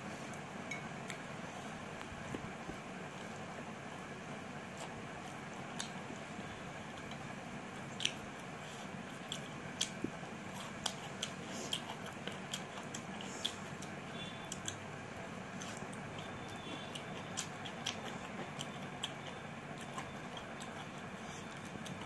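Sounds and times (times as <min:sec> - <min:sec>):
chewing with wet mouth clicks: 0:04.7 - 0:06.3, 0:06.9 - 0:14.8, 0:15.5 - 0:22.0.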